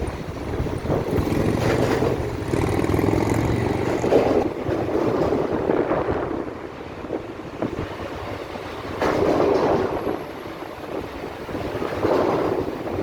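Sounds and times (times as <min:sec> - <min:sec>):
passing vehicle rumble: 0:00.0 - 0:05.6.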